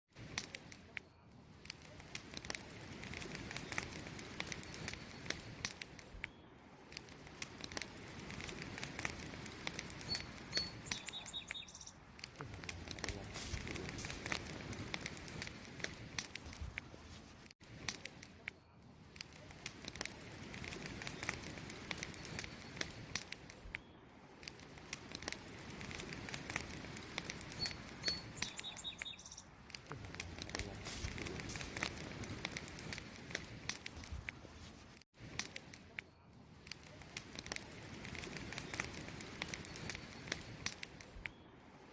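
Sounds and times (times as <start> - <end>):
campfire crackling: 0.1 - 41.9.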